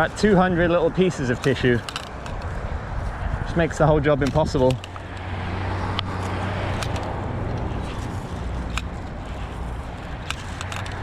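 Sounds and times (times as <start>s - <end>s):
vehicle engine hum and tyre noise: 0.0s - 11.0s
sharp light clicks: 10.1s - 11.0s.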